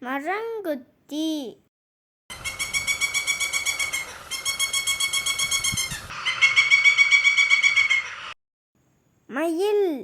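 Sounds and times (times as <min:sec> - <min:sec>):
woodpecker calling: 0:02.3 - 0:08.4.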